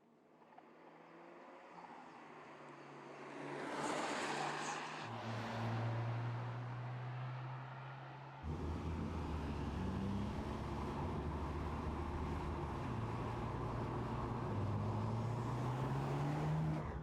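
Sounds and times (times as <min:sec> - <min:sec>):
car engine and exhaust drone: 0:05.1 - 0:17.0.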